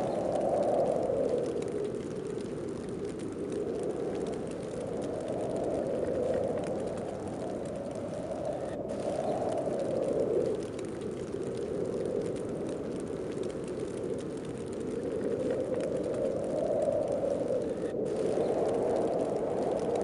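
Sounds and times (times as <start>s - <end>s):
snowstorm wind gusting: 0.0s - 20.0s.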